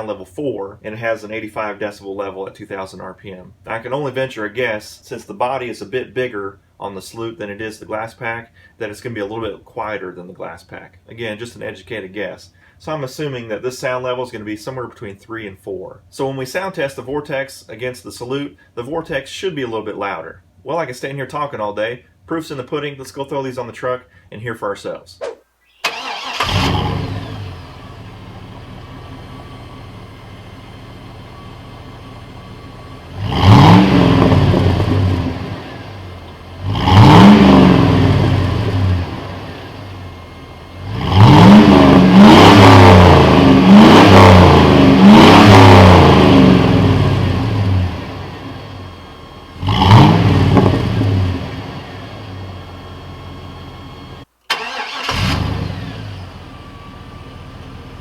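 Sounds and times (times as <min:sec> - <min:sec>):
engine revving: 0:25.8 - 0:27.8, 0:33.0 - 0:56.4
engine starting: 0:25.8 - 0:27.8, 0:54.5 - 0:56.3.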